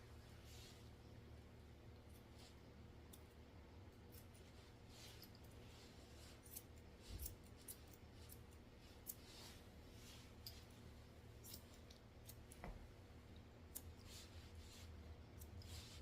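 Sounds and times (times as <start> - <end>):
scissors snipping hair: 3.0 - 5.6, 6.2 - 9.6, 11.4 - 12.8, 13.4 - 14.3.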